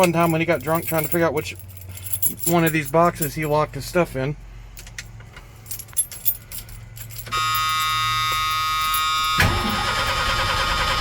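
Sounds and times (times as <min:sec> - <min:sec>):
keys jingling: 0:00.0 - 0:09.4
steady warning buzzer: 0:07.3 - 0:10.6
engine starter cranking: 0:08.5 - 0:11.0.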